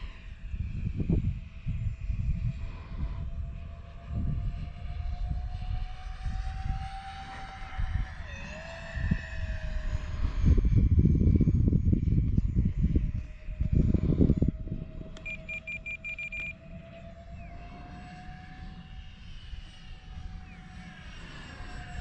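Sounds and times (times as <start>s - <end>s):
electric ducted fans whining: 0.0s - 22.0s
wind rumble on microphone: 0.0s - 22.0s.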